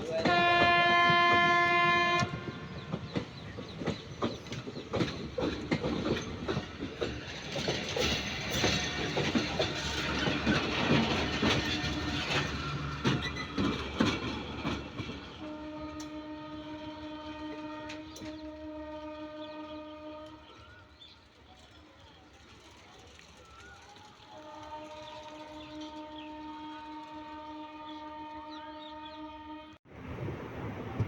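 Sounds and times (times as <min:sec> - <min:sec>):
train horn blast: 0:00.0 - 0:03.0, 0:11.1 - 0:13.6, 0:15.3 - 0:20.9, 0:24.3 - 0:29.8
train wheels clattering over rail joints: 0:00.1 - 0:16.2.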